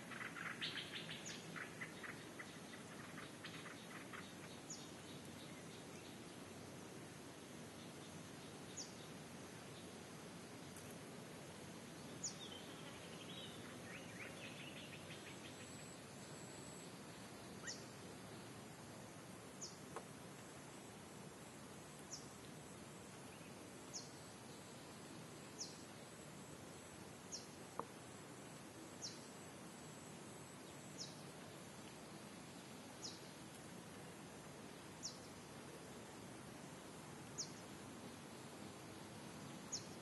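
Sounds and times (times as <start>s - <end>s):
rapid bird twittering: 0.0s - 6.2s, 12.2s - 15.9s, 17.5s - 18.0s
faint hiss: 0.0s - 40.0s.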